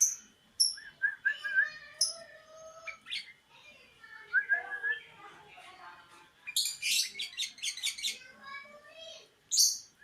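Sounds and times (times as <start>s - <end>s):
bulbul singing: 0.0s - 3.4s, 9.5s - 10.0s.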